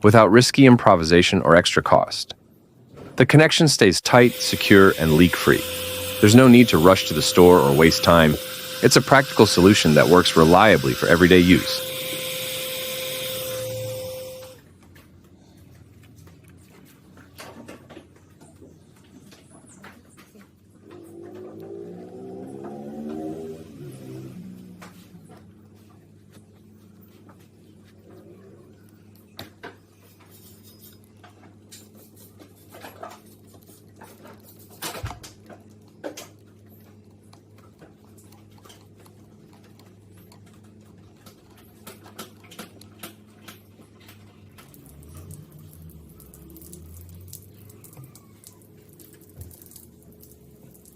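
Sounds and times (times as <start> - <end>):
low hum: 4.2 - 14.6.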